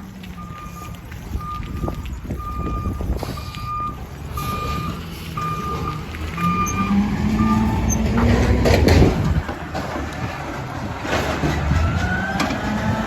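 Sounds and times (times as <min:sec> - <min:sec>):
truck engine running: 0:00.0 - 0:13.0
reversing alarm beeping: 0:00.3 - 0:08.2.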